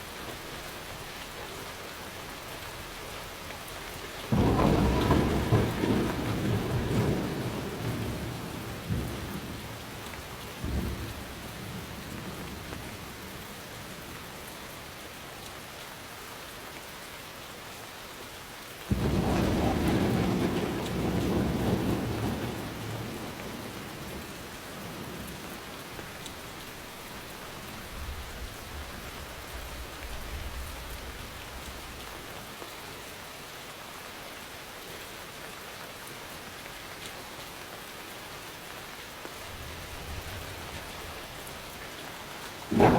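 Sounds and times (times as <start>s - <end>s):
steady rain falling: 0.0s - 42.9s
loud thunderclap: 4.3s - 10.0s, 18.9s - 26.1s, 42.6s - 42.9s
low rumble of thunder: 4.3s - 14.3s, 18.9s - 32.3s, 39.4s - 42.9s.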